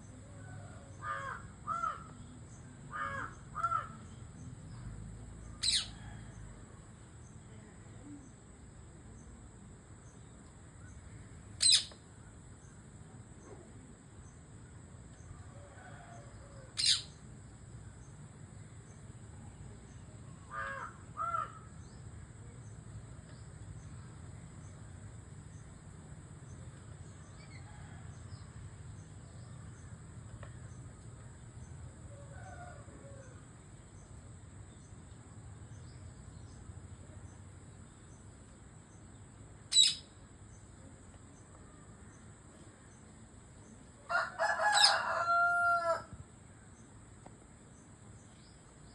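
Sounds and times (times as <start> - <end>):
faint bird calls: 0.0 - 4.5, 5.5 - 6.5, 10.8 - 12.0, 15.8 - 17.2, 19.9 - 22.6, 39.7 - 42.9
parrot shrill calls: 5.6 - 5.9, 11.6 - 11.9, 16.8 - 17.1, 39.7 - 40.0, 44.4 - 45.2.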